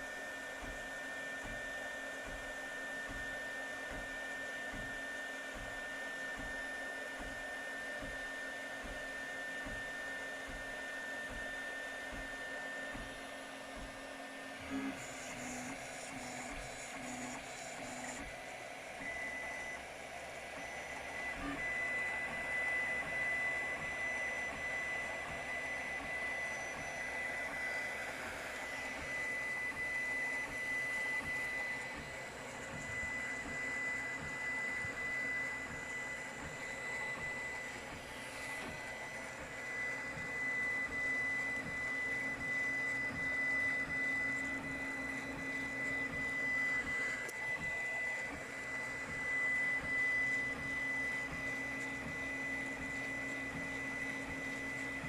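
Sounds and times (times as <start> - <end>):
printer motors and fan: 0.0 - 55.0.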